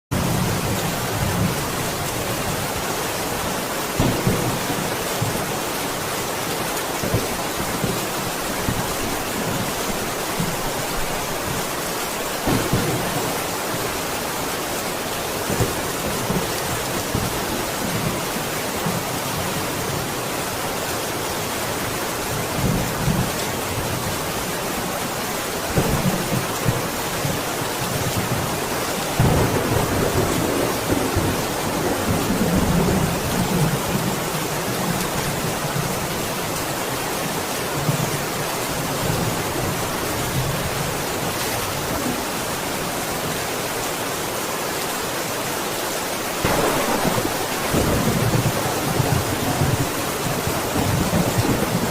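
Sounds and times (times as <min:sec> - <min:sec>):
heavy rain: 0:00.1 - 0:51.9
thunder rumbling: 0:12.4 - 0:14.1, 0:29.1 - 0:33.9, 0:46.4 - 0:51.9.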